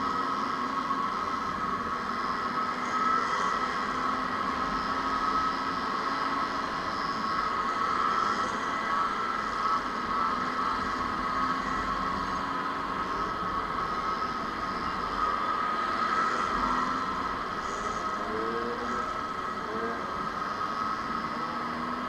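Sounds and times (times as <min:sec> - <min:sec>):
two-stroke motorcycle engines droning: 0:00.0 - 0:22.0.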